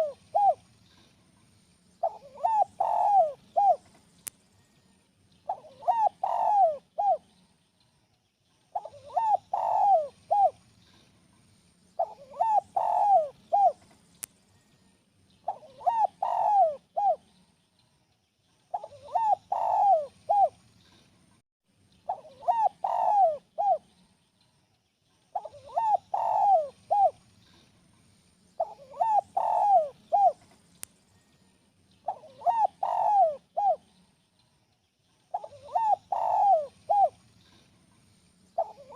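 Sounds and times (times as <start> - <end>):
dove cooing: 0.0 - 0.6, 2.0 - 4.0, 5.5 - 7.3, 8.7 - 10.6, 12.0 - 13.8, 15.4 - 17.3, 18.7 - 20.6, 22.1 - 23.9, 25.3 - 27.2, 28.6 - 30.4, 32.0 - 34.0, 35.3 - 37.6, 38.6 - 38.9.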